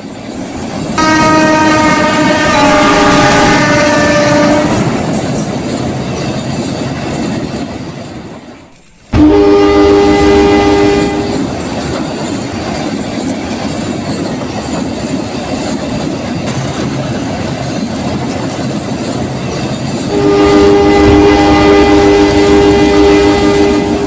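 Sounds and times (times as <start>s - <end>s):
train rumbling on rails: 0.0s - 24.0s
train horn chord: 1.0s - 5.1s, 9.1s - 11.5s, 20.1s - 24.0s.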